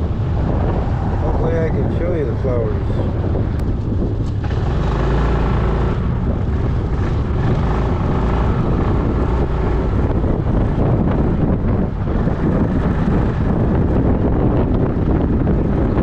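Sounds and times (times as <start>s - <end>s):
wind buffeting microphone: 0.0s - 16.0s
scooter engine running: 3.6s - 16.0s.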